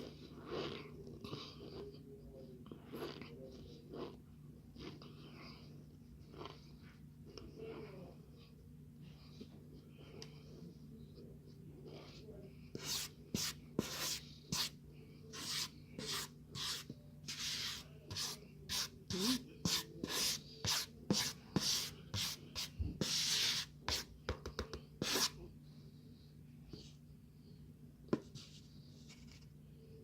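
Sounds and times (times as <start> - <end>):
starch powder rubbing and scraping: 12.8 - 14.7.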